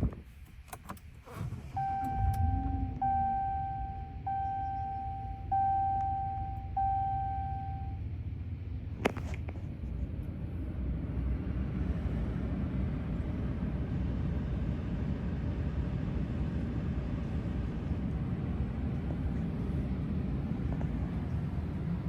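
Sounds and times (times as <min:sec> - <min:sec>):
low background rumble: 0:00.0 - 0:22.0
electronic chime: 0:01.8 - 0:08.0.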